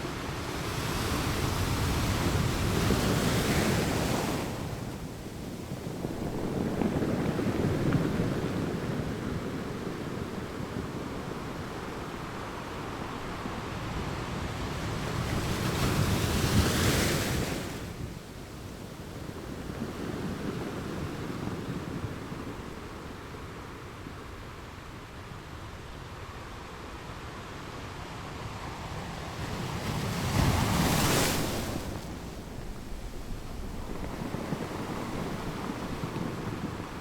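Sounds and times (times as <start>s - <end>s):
wind on the microphone: 0.0s - 25.0s, 28.4s - 37.0s
ocean waves breaking on shore: 25.9s - 37.0s.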